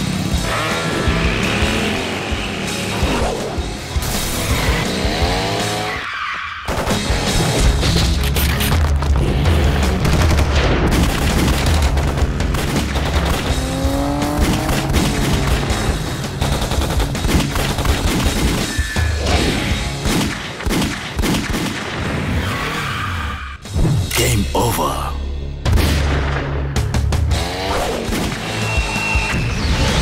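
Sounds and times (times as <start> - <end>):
driving action music: 0.0 - 30.0
rapid gunfire: 9.8 - 18.7, 20.0 - 22.0.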